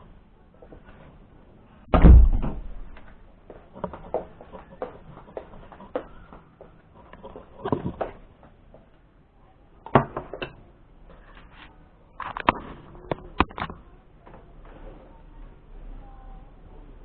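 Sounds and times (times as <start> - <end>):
objects knocking and clattering: 7.2 - 8.2.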